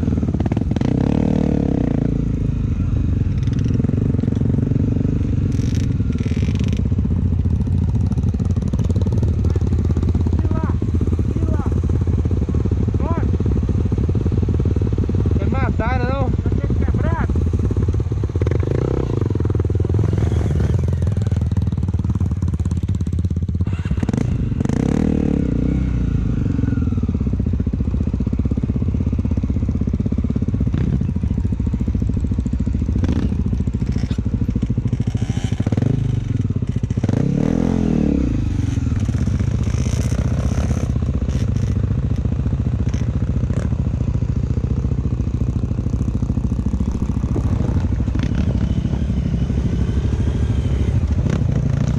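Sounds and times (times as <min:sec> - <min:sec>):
motorcycle engine running: 0:00.0 - 0:51.9
engine clatter: 0:27.2 - 0:51.9.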